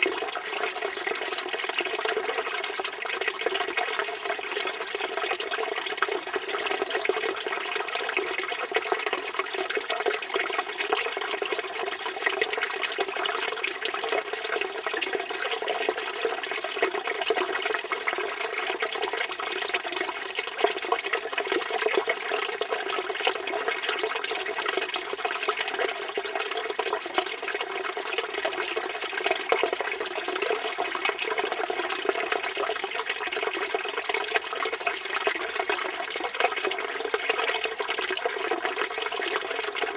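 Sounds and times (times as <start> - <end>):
fountain water pouring and splashing: 0.0 - 39.9.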